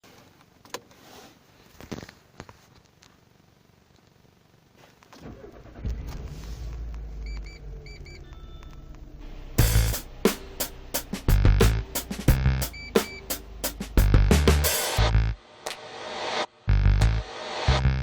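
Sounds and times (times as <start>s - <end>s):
car engine starting and idling: 5.2s - 11.7s
paired electronic beeps: 7.2s - 9.0s, 12.3s - 13.4s.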